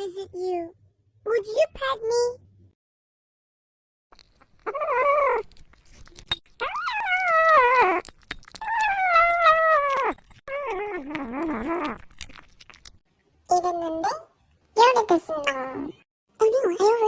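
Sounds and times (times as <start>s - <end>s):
cat meowing: 6.6s - 12.0s.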